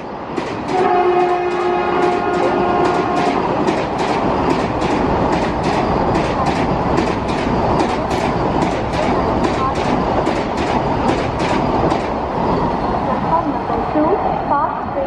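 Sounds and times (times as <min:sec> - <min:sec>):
train rushing past: 0:00.0 - 0:15.0
train two-tone horn: 0:00.7 - 0:03.4.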